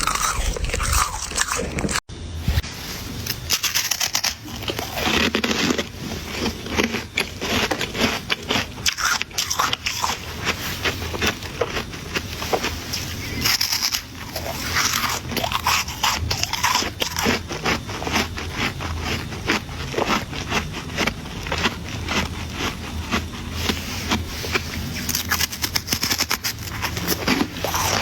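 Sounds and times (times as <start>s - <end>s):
ice crunching and crackling: 0.0s - 2.1s, 3.2s - 18.4s, 19.0s - 28.0s
scraping on ice: 23.6s - 28.0s.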